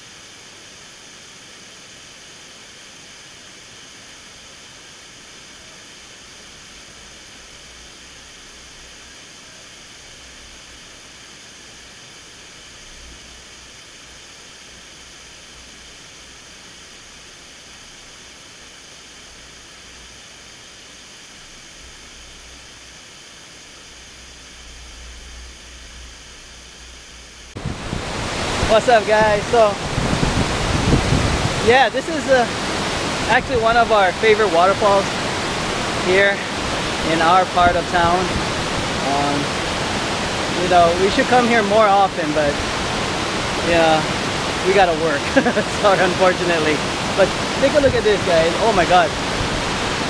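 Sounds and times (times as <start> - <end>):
waterfall rushing: 25.5 - 50.0
wind rumble on microphone: 27.5 - 41.7, 45.6 - 50.0.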